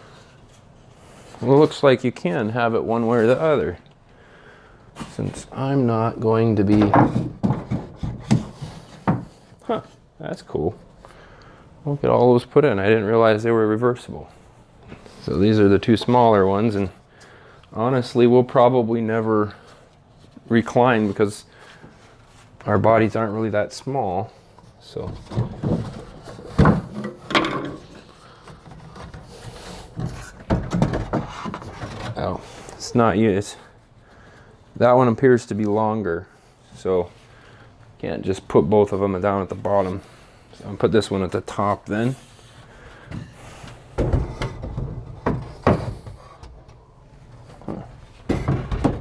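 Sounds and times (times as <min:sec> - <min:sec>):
wooden boards knocking and sliding: 0:06.6 - 0:09.4, 0:25.1 - 0:32.2, 0:43.1 - 0:46.8, 0:47.6 - 0:49.0
knocks of wooden boards: 0:06.7 - 0:09.3
wood sliding against wood: 0:25.2 - 0:32.5.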